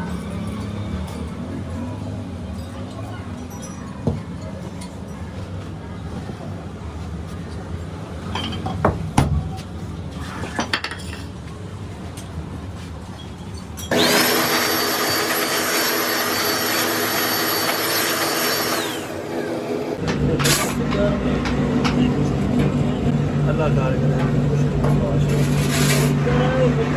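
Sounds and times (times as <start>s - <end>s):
power tool whining on metal: 13.9s - 20.8s, 25.3s - 26.2s.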